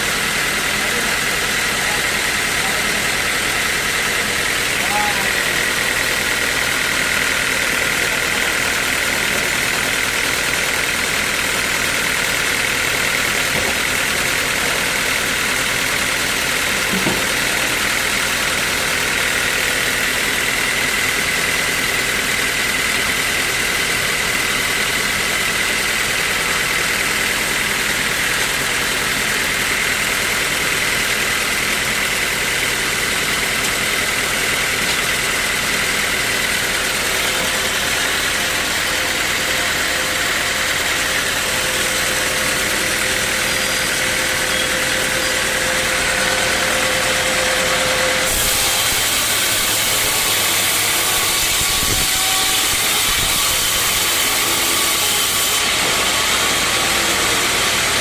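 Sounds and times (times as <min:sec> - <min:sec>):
sawmill machinery running: 0:00.0 - 0:58.0
high saw whine: 0:12.0 - 0:58.0.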